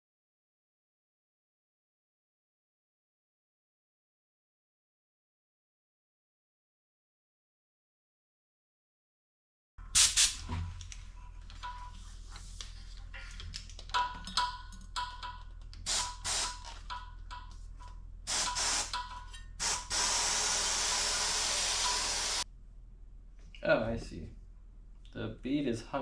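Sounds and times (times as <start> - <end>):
air hissing into bicycle tire: 10.0 - 10.4, 15.9 - 16.7, 18.3 - 19.0, 19.6 - 22.4
short bursts of air hissing: 10.0 - 10.4, 15.8 - 16.7, 18.3 - 19.0, 19.6 - 22.4.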